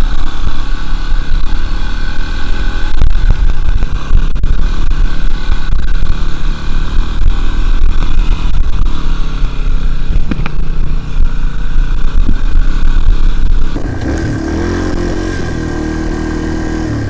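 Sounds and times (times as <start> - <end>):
low rumble and buffeting: 11.0 - 17.0
dirt bike engine running: 13.7 - 17.0.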